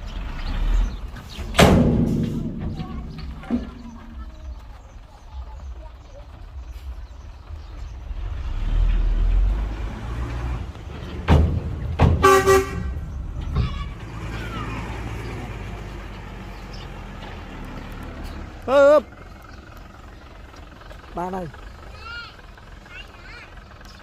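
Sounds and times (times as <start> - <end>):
diesel machinery rumbling: 0.0 - 24.0
heavy knocks: 1.4 - 4.2, 10.9 - 14.2
vehicle horn toot: 12.2 - 13.1.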